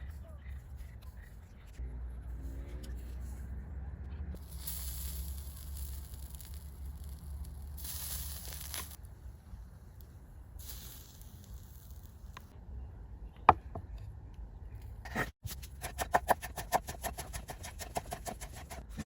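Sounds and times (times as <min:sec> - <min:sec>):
hissing bursts: 0:04.4 - 0:09.0.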